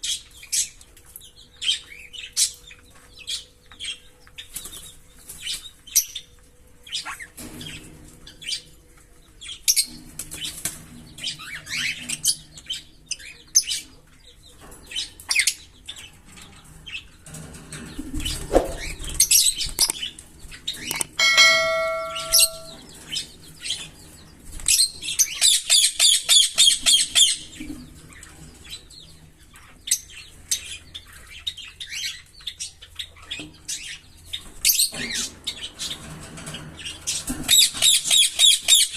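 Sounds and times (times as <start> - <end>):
lovebirds chirping: 17.8 - 35.9
steady ringing tone: 21.2 - 22.9.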